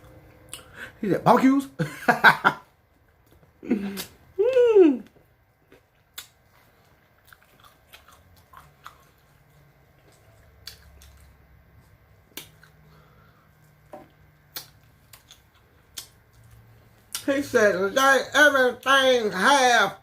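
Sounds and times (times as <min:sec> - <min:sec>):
chewing with mouth clicks: 0:05.1 - 0:17.3.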